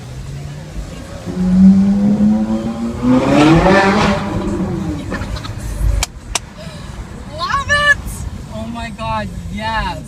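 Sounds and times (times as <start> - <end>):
sports car engine revving: 0.0 - 6.5.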